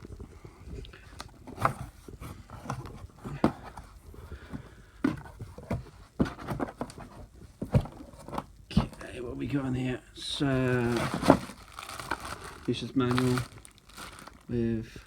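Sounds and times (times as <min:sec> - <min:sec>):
packaging scraping and rustling: 0:01.0 - 0:09.1, 0:10.3 - 0:15.0
knocks and thumps on cardboard: 0:01.3 - 0:09.1, 0:10.8 - 0:11.6.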